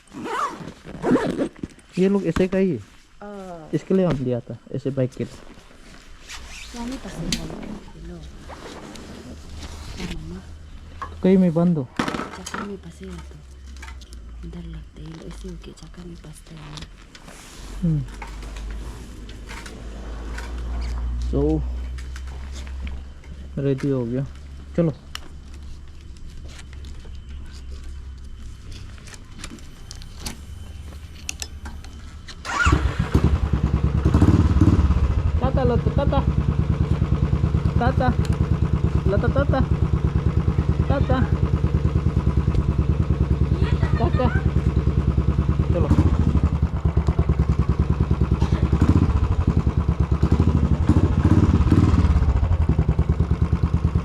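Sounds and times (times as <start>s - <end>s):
motorcycle engine: 27.8s - 54.0s.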